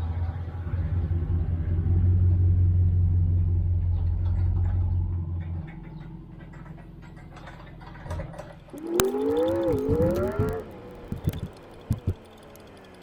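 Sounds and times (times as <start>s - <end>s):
engine running with low hum: 0.0s - 13.0s
faint clicks: 4.0s - 13.0s.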